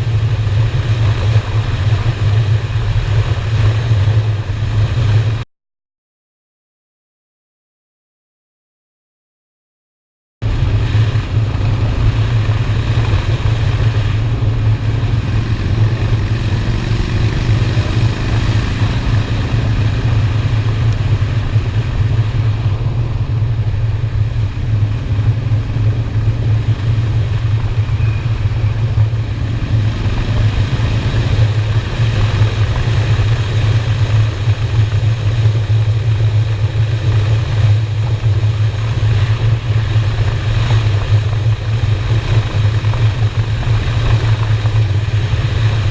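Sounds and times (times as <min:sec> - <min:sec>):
motorcycle engine rumbling: 0:00.0 - 0:05.4, 0:10.4 - 0:45.9.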